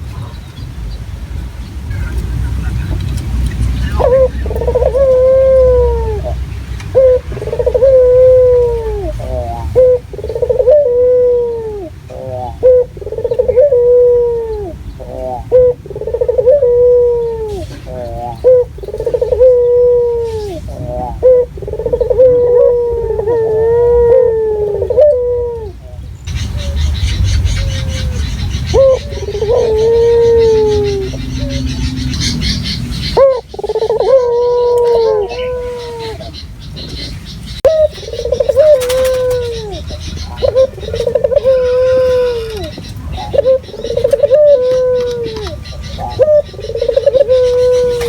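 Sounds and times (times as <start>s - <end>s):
dove cooing: 1.9s - 48.0s.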